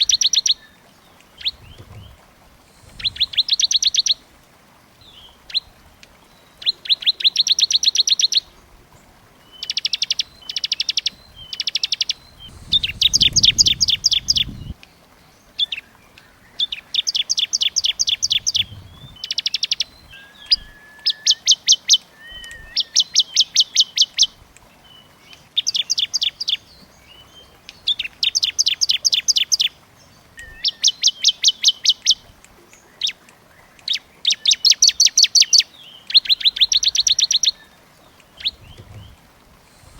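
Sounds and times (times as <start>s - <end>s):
songbird rapid trills: 0.0s - 4.3s, 9.6s - 14.9s, 15.5s - 32.4s
faint low rumble: 1.4s - 3.8s, 12.2s - 14.8s, 17.9s - 20.7s, 38.4s - 39.9s.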